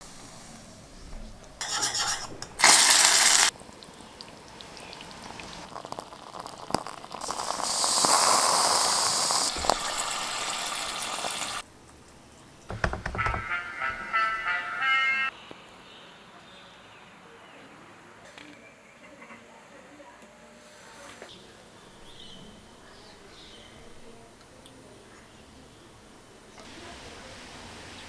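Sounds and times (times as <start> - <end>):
water running and pouring: 1.6 - 11.6
sharp clicks and knocks: 12.7 - 13.5.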